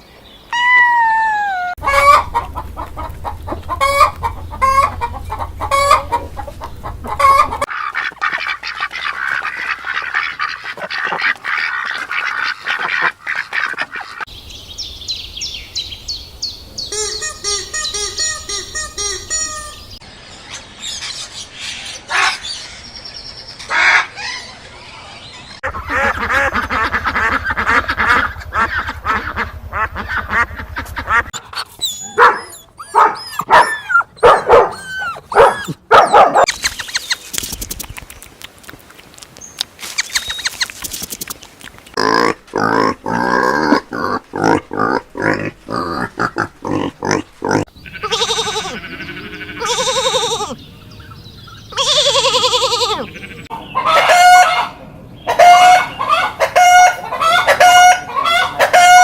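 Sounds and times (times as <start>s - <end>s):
farm animal calls: 1.5s - 20.0s, 25.6s - 37.2s, 41.9s - 59.0s
honks and grunts: 25.6s - 36.5s, 42.0s - 50.7s.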